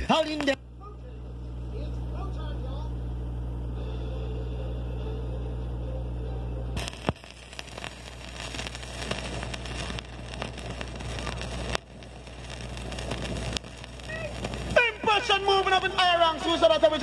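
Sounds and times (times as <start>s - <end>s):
low hum: 0.0s - 17.0s
sharp clicks and pops: 6.8s - 14.8s
dense crackling: 6.8s - 17.0s.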